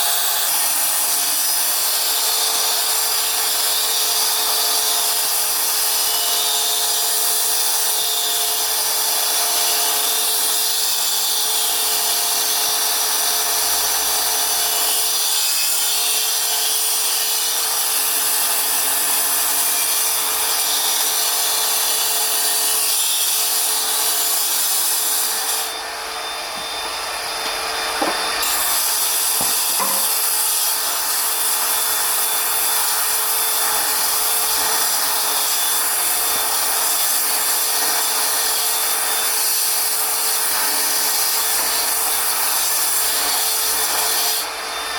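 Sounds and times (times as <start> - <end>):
power tool grinding stone: 0.0 - 44.9
light knocks: 27.4 - 28.4.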